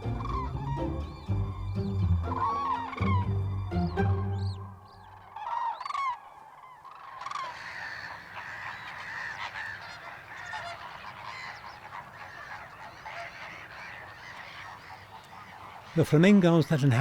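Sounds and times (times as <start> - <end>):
flock of birds honking: 0.0 - 17.0.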